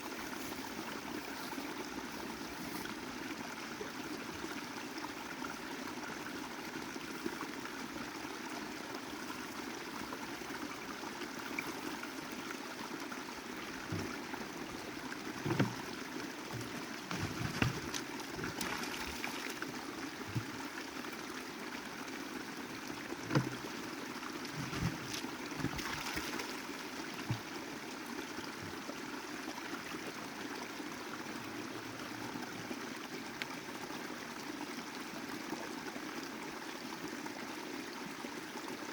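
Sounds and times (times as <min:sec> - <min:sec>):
creek flowing: 0:00.0 - 0:38.9
low knocks and bumps: 0:13.8 - 0:14.3, 0:15.4 - 0:15.9, 0:16.5 - 0:18.6, 0:24.5 - 0:26.0.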